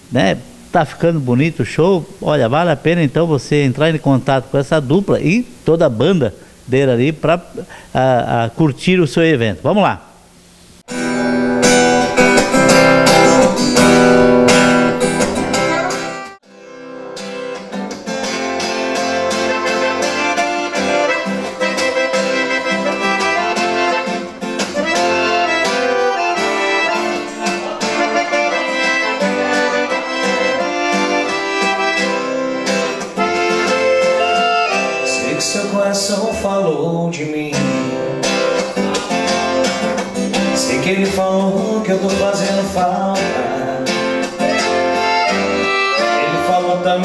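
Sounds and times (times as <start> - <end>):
guitar: 0.0 - 9.1, 10.4 - 47.0
accordion: 10.9 - 36.6, 38.1 - 41.2, 42.6 - 47.0.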